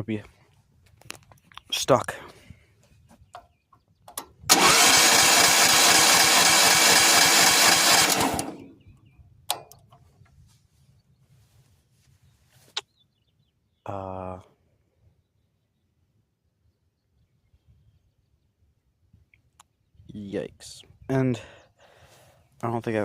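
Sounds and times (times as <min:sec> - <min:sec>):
engine cranking on starter: 0:04.2 - 0:08.7.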